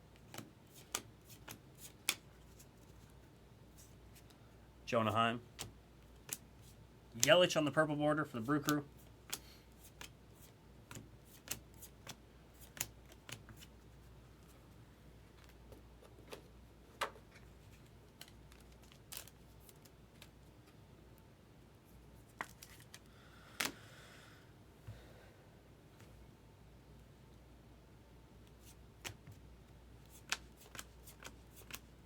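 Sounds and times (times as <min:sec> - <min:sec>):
cards flicking and tapping: 0:00.2 - 0:02.7, 0:05.5 - 0:07.4, 0:08.5 - 0:13.7, 0:29.0 - 0:29.4, 0:30.1 - 0:31.9
cards rustling: 0:17.4 - 0:20.4, 0:22.2 - 0:23.8, 0:30.1 - 0:31.9.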